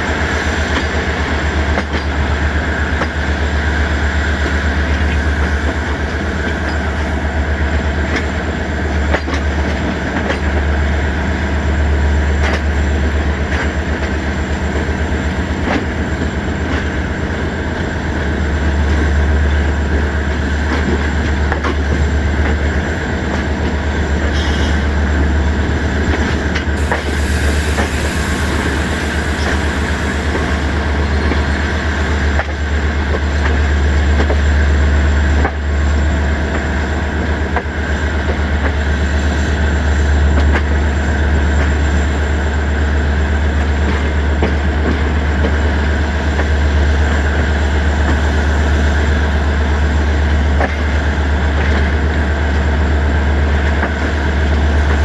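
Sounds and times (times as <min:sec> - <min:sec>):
train wheels rumbling on track: 0:00.0 - 0:55.0
hissing rush: 0:26.8 - 0:31.7.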